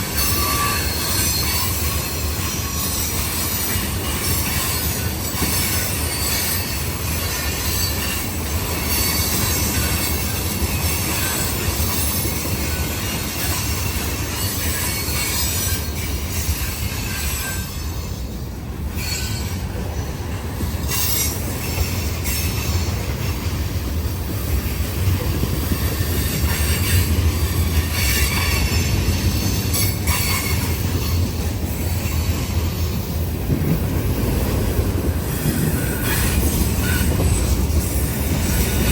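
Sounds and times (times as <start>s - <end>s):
freight train rolling past: 0.0s - 38.9s.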